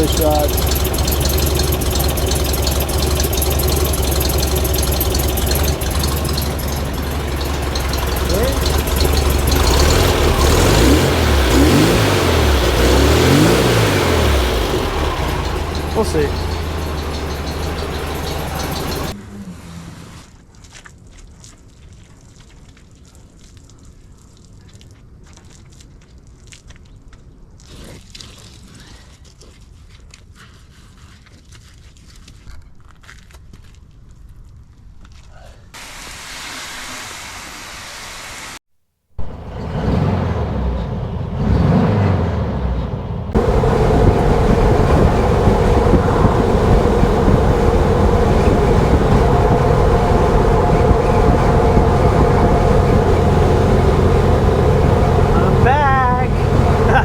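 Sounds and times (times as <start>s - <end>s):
engine idling: 0.0s - 19.2s, 39.2s - 57.0s
valvetrain ticking: 0.0s - 19.2s, 39.2s - 57.0s.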